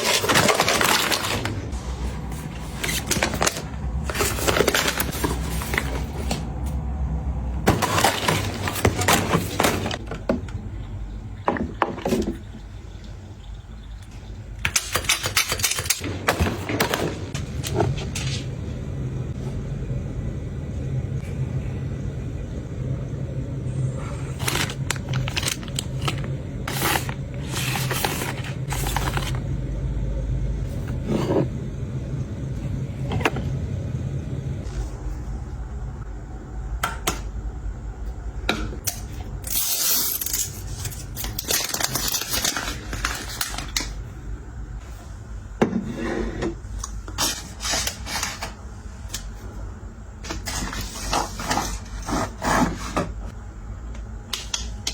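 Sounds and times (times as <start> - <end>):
rustling and scraping: 0.0 - 6.5, 24.3 - 29.4, 50.2 - 53.3
containers being handled: 0.0 - 6.7, 7.7 - 10.6, 24.3 - 29.4
low steady hum: 0.0 - 54.9.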